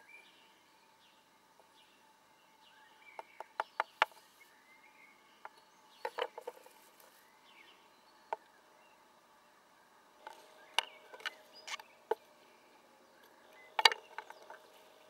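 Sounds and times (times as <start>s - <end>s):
faint bird chirps: 0.0s - 15.0s
sharp clicks or knocks: 13.8s - 14.6s.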